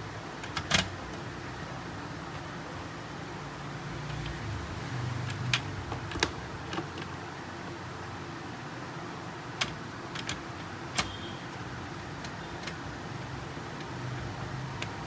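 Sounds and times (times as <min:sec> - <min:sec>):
clicks and taps of tools and parts: 0:05.2 - 0:07.2, 0:09.6 - 0:12.8.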